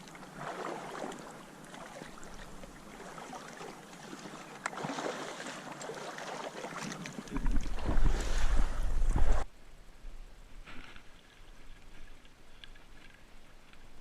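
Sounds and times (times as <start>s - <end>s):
water sloshing and splashing: 0.0s - 9.5s.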